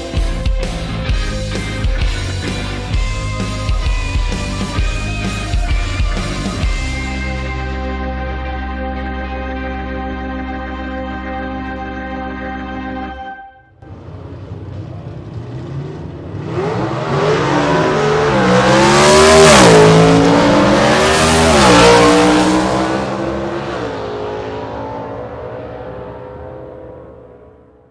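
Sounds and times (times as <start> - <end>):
motorbike engine passing by: 13.8 - 26.8.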